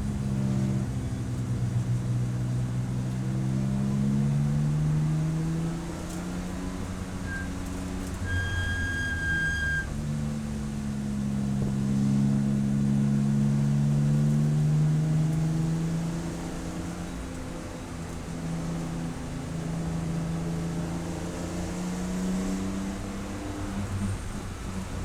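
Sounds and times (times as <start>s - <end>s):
race car engine: 0.0s - 25.0s
high steady whistle: 7.2s - 9.9s.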